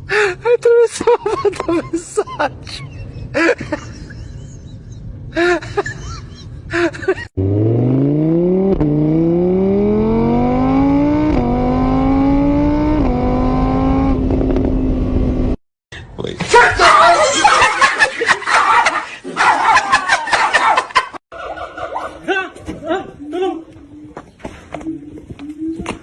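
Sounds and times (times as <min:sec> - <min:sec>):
engine accelerating hard: 0:07.4 - 0:15.6.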